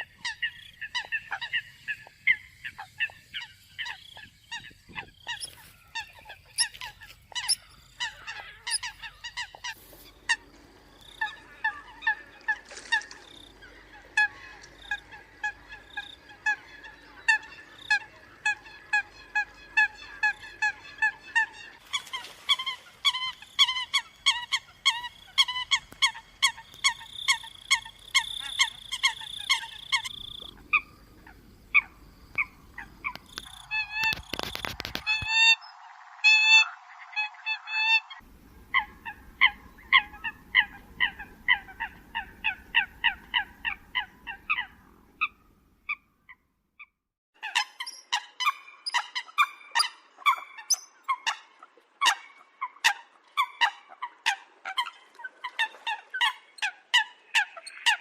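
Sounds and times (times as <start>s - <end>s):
coots honking calls: 0.0s - 35.6s, 36.2s - 46.0s
brief crackle: 33.1s - 35.4s.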